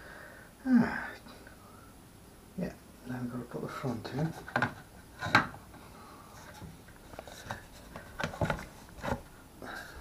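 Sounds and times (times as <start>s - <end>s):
plastic case clicks and knocks: 4.5s - 5.6s, 7.5s - 9.2s.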